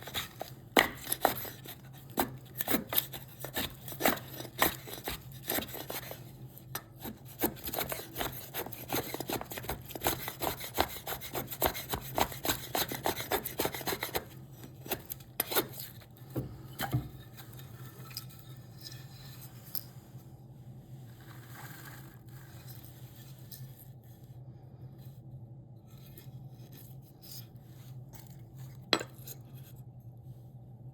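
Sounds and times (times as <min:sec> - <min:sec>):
hand tool scraping wood: 0:00.0 - 0:15.9
low steady hum: 0:00.0 - 0:30.9.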